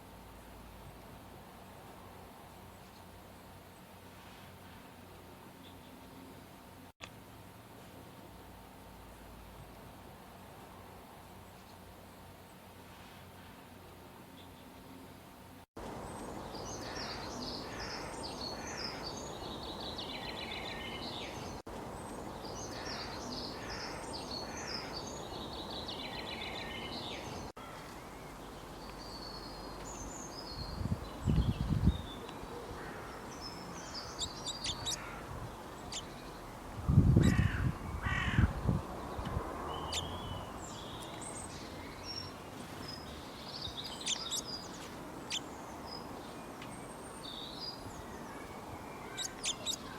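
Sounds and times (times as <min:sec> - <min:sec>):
outdoor background hiss: 0:00.0 - 0:49.9
birds chirping and singing: 0:33.4 - 0:35.2, 0:39.7 - 0:49.9.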